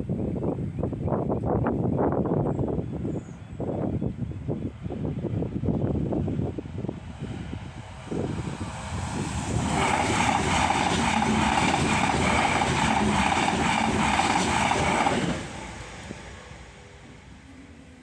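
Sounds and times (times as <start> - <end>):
train passing rumble: 2.1 - 18.0.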